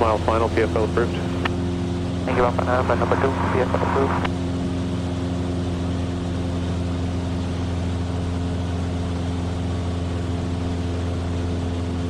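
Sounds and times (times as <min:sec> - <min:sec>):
airplane engine and propeller droning: 0:00.0 - 0:01.5, 0:02.3 - 0:04.3.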